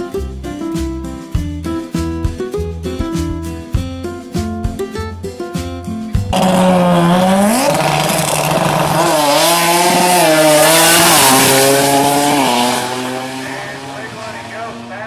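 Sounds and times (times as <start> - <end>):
car engine revving: 6.3 - 15.0.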